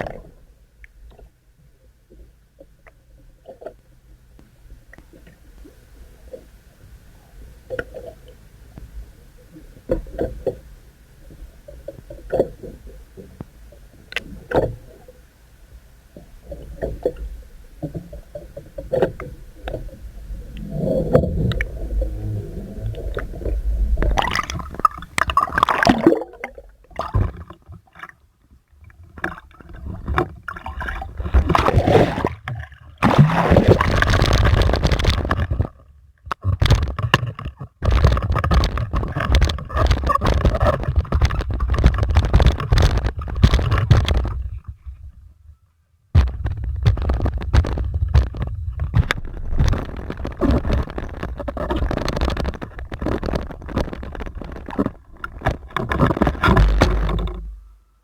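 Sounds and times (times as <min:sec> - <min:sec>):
water sloshing and splashing: 0:16.4 - 0:45.2, 0:46.2 - 0:57.8
knocks and clicks: 0:46.2 - 0:57.7.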